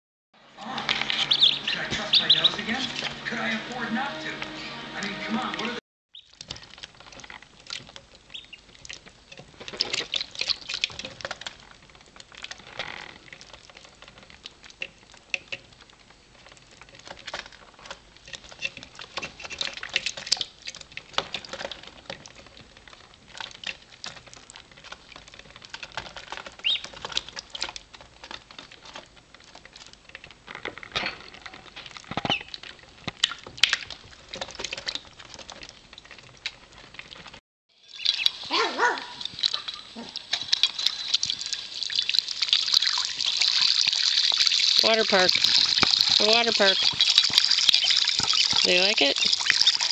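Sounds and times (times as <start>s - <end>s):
ducklings peeping: 0.6s - 3.2s, 6.1s - 6.4s, 8.3s - 8.6s, 26.6s - 27.2s, 32.3s - 32.6s, 37.9s - 38.4s
small feet pattering and scratching: 0.6s - 4.4s, 6.1s - 49.9s.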